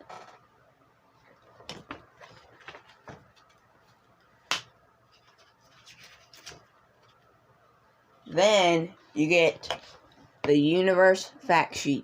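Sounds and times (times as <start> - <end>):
paper rustling: 1.6 - 4.0, 5.1 - 7.2.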